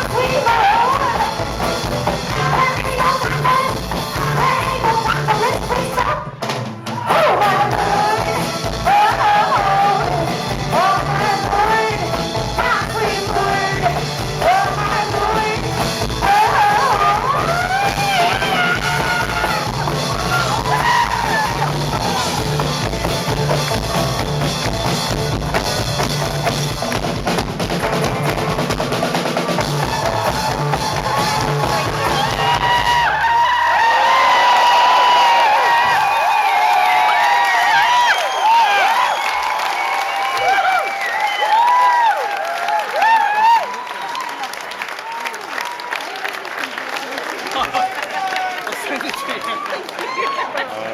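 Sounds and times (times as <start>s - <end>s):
live band music: 0.0s - 33.2s
drum kit beat: 0.0s - 33.3s.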